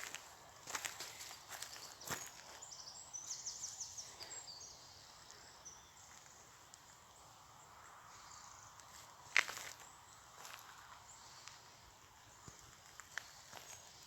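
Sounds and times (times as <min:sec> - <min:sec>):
footsteps: 0:00.0 - 0:02.6
open-air background: 0:00.0 - 0:14.0
small bird singing: 0:00.7 - 0:14.0.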